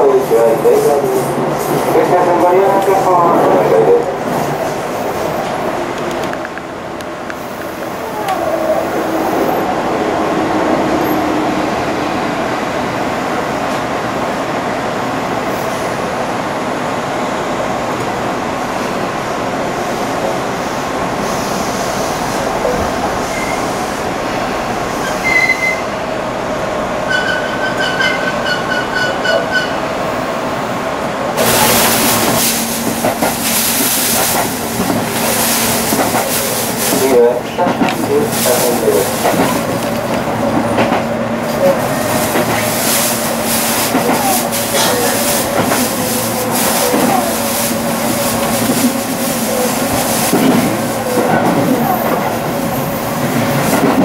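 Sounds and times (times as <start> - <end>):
train wheels and motors rumbling: 17.6 - 54.0.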